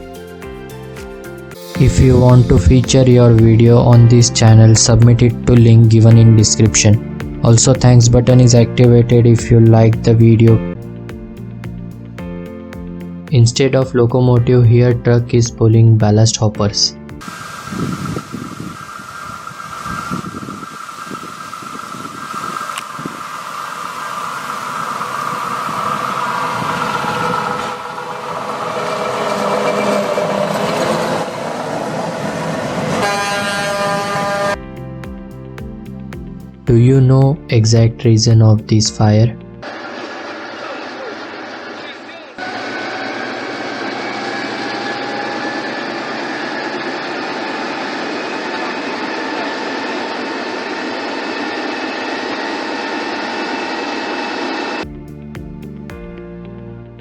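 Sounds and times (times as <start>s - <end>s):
drum-led music: 0.0s - 13.5s, 34.6s - 37.5s, 54.8s - 56.1s
truck hauling wagons on rails: 17.2s - 34.6s, 39.6s - 54.8s
horn sounding: 25.6s - 34.6s, 39.6s - 46.4s.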